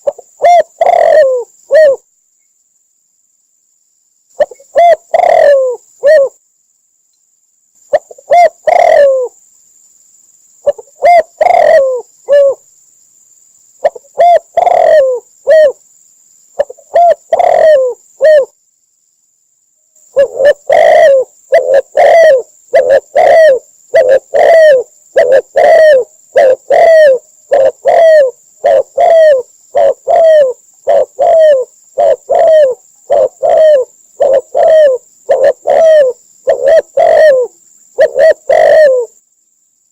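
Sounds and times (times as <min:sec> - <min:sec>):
dove cooing: 0:00.0 - 0:02.1, 0:04.4 - 0:06.4, 0:07.9 - 0:09.4, 0:10.6 - 0:12.6, 0:13.8 - 0:15.8, 0:16.6 - 0:18.5, 0:20.1 - 0:39.2.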